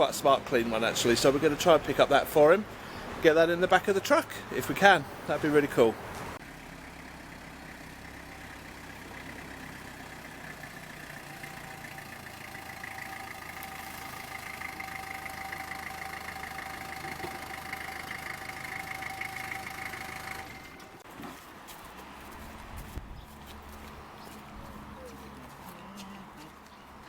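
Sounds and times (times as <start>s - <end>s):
vehicle engine running: 5.1s - 21.0s.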